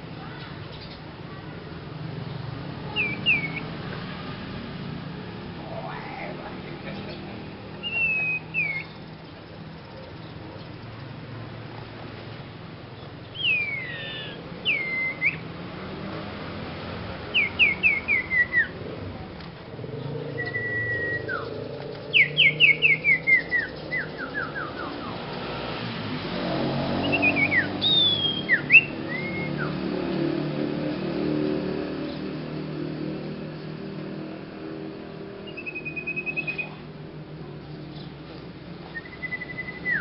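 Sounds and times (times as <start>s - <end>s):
songbird singing whistled notes: 2.9s - 3.7s, 7.8s - 10.8s, 13.0s - 15.5s, 17.3s - 18.8s, 20.2s - 25.5s, 26.9s - 29.9s, 35.4s - 36.9s, 38.8s - 40.0s.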